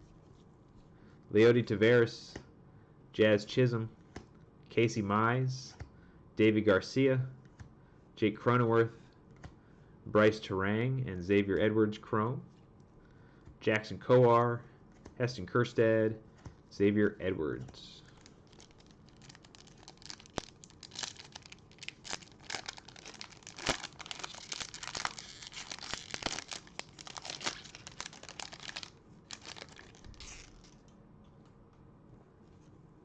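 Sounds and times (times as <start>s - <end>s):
foil wrapper tearing and crinkling: 18.1s - 30.8s.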